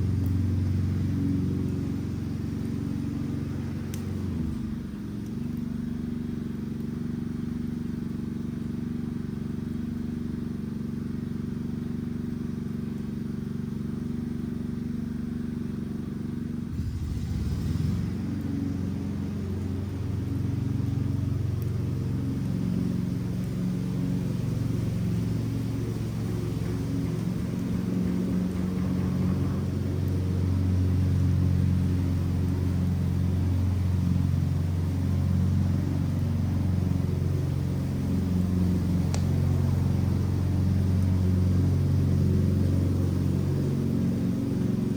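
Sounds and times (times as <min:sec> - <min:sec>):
engine running: 0:00.0 - 0:44.9.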